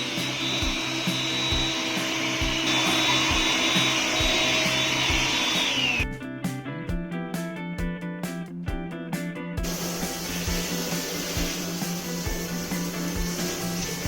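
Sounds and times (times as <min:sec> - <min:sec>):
vacuum cleaner whining: 0:00.0 - 0:06.1, 0:09.6 - 0:14.0
background music with steady beat: 0:00.0 - 0:14.0.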